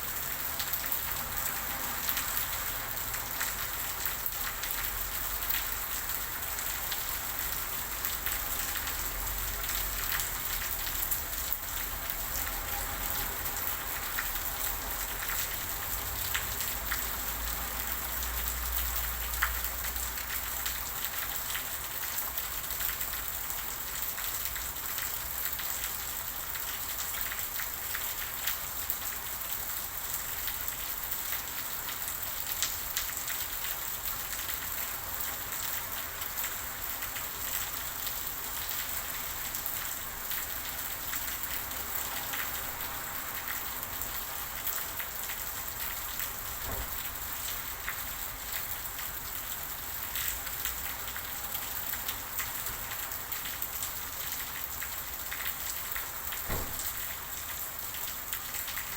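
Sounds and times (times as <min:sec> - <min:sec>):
rain hissing: 0:40.0 - 0:58.9.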